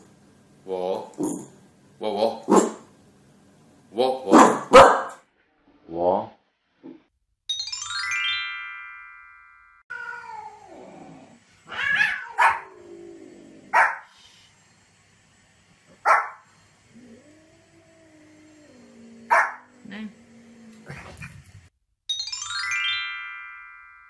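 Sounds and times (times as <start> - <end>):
small dog barking: 4.3 - 5.2, 11.9 - 12.7, 13.7 - 14.1, 16.0 - 16.4, 19.3 - 19.7
rising chime jingle: 7.5 - 9.8, 22.1 - 24.0
cat meowing: 9.9 - 10.8, 11.7 - 12.7.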